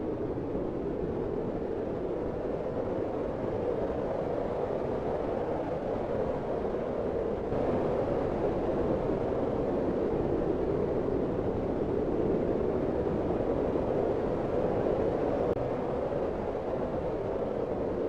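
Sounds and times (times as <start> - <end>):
wind blowing steadily: 0.0 - 18.0.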